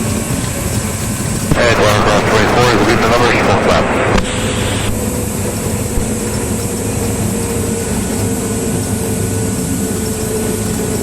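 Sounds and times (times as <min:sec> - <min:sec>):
aircraft engine and propeller drone: 0:00.0 - 0:11.0
steady hiss: 0:01.5 - 0:06.6.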